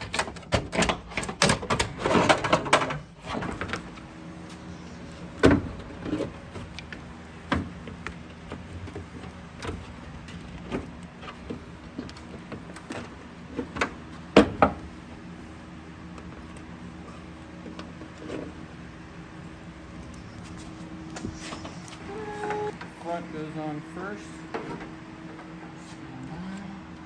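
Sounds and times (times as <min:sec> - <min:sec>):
rattle of handling engine parts: 0:00.0 - 0:15.6.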